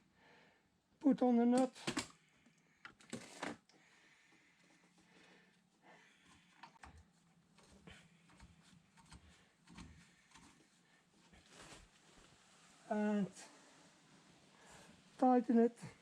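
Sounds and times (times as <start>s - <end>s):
faint handling clicks and knocks: 6.2s - 12.2s.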